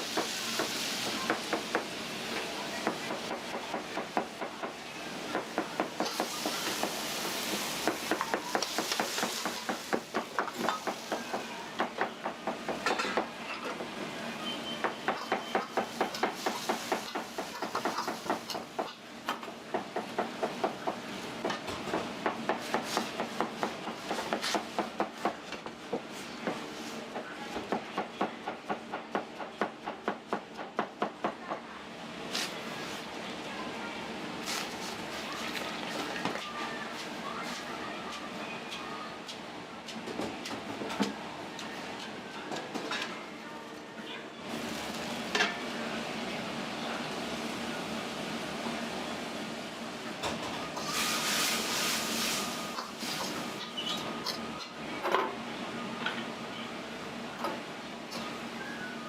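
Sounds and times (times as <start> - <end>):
food sizzling: 0.0 - 3.2, 5.4 - 11.5, 15.7 - 18.8, 50.8 - 54.0.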